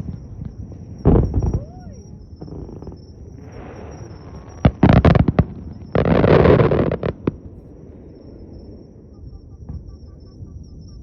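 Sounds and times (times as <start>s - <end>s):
fireworks bursting: 0.0s - 8.2s.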